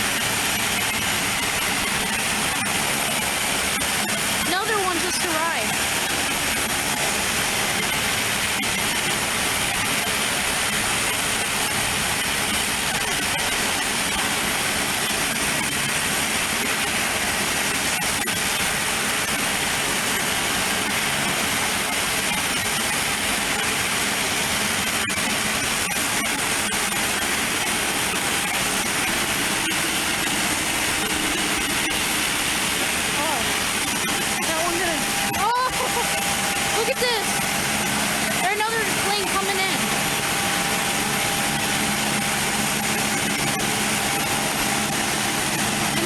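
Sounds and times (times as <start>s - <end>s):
aircraft engines running: 26.2s - 46.0s.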